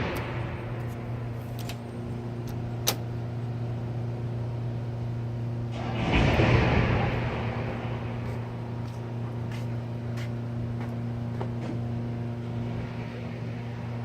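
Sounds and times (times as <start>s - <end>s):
rushing noise: 0.0s - 1.7s, 5.7s - 10.0s
low droning hum: 0.0s - 14.0s.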